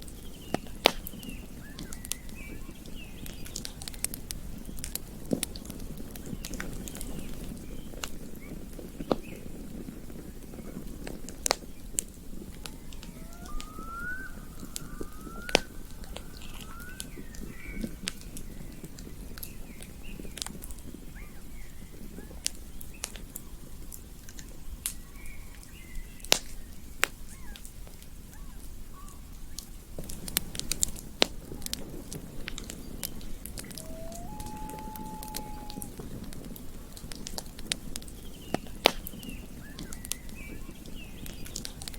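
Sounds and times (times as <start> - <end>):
campfire crackling: 0.1 - 21.0, 29.5 - 41.9
bird chirping: 12.7 - 18.0, 33.2 - 35.9.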